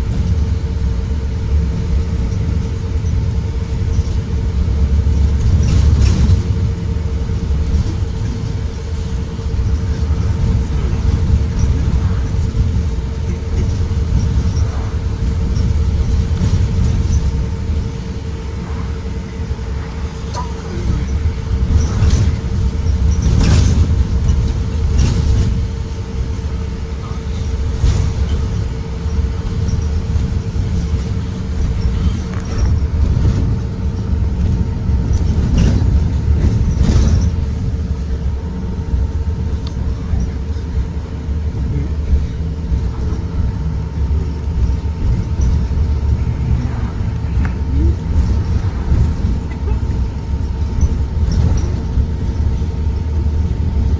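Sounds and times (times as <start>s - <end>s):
bus engine and road rumble: 0.0s - 53.9s
steady whine: 0.0s - 53.9s
sharp knocks and rattles: 5.1s - 26.5s, 27.4s - 53.9s.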